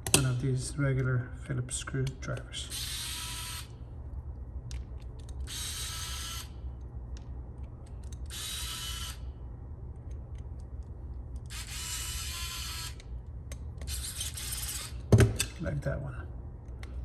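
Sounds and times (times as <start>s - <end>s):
electric screwdriver whirring: 5.5s - 6.5s, 8.3s - 9.2s, 11.5s - 13.0s.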